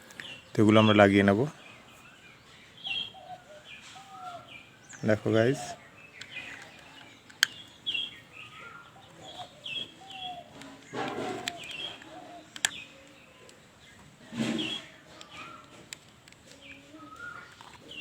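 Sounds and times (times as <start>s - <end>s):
small birds chirping: 0.0s - 18.0s
plastic toy parts clicking: 6.2s - 7.8s, 10.5s - 13.6s.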